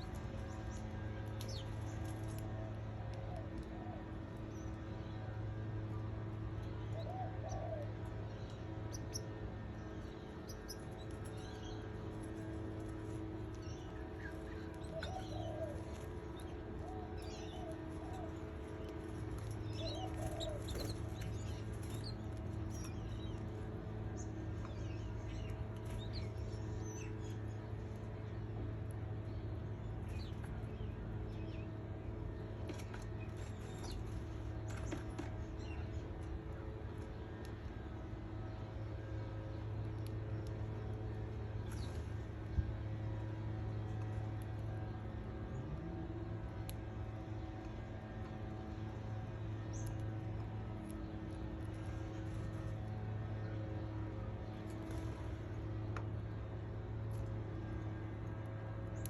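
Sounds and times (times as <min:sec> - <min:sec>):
steady electrical hum: 0:00.0 - 0:59.0
low wavering cooing calls: 0:06.9 - 0:08.1, 0:14.6 - 0:18.6, 0:19.7 - 0:21.6
canaries chirping: 0:18.9 - 0:22.2.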